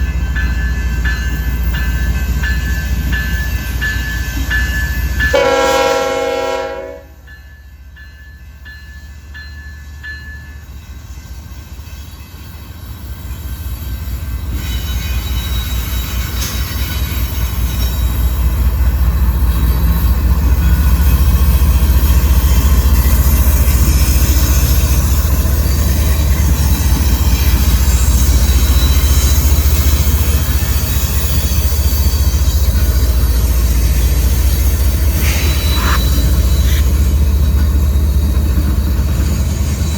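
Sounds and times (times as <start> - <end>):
train rumbling past: 0.0 - 39.9
locomotive horn: 5.3 - 7.3.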